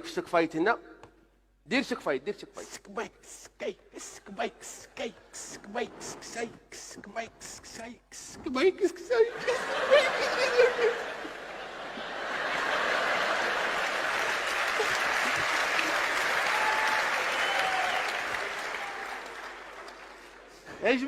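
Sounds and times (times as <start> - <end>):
group applauding: 9.4 - 20.8.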